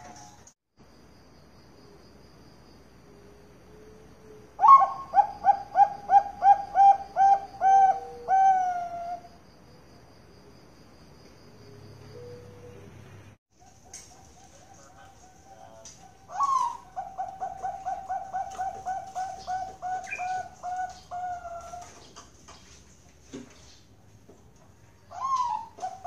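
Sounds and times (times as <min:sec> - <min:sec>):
dove cooing: 0:03.8 - 0:09.3, 0:12.1 - 0:13.0, 0:13.6 - 0:22.2, 0:25.1 - 0:26.0.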